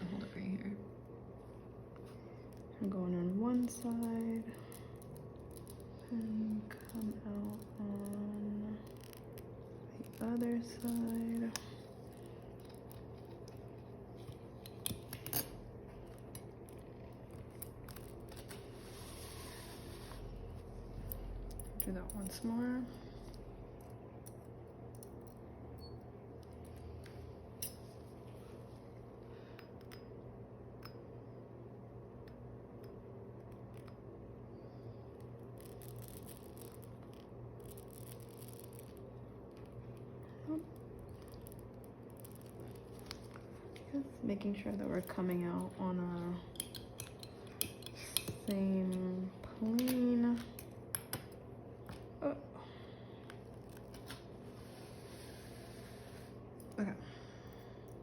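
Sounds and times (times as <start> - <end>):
faint steady hum: 0.0 - 58.0
surgical instruments clicking: 2.0 - 18.6, 35.1 - 52.0.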